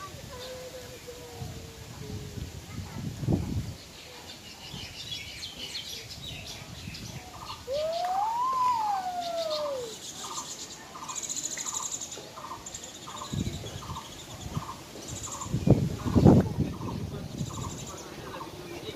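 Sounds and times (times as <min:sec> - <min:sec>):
birds chirping and chattering: 0:00.0 - 0:18.9
bird whistle rising and falling: 0:07.7 - 0:10.1.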